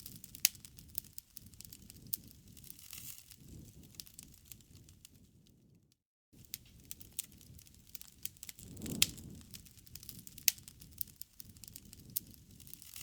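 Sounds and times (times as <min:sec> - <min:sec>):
burning wood popping: 0:00.0 - 0:05.6, 0:06.4 - 0:13.0
campfire crackling: 0:00.0 - 0:05.8, 0:06.4 - 0:13.0.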